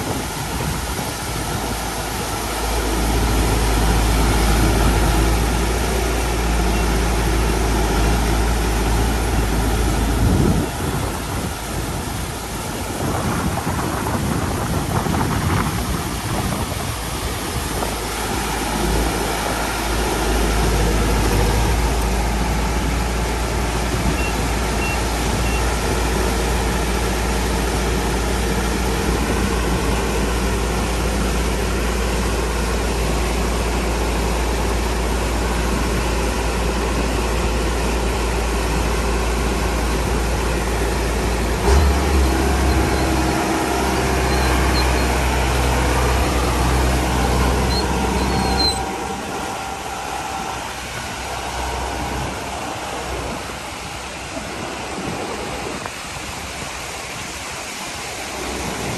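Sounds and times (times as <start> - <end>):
road noise: 0.0 - 58.9
vehicle engine rumbling: 0.0 - 58.9
vehicle jolt: 40.1 - 55.8.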